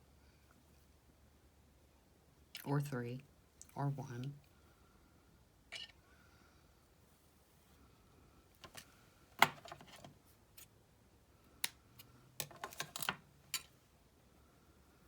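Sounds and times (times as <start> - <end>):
craft tools clicking and snipping: 11.6 - 13.7.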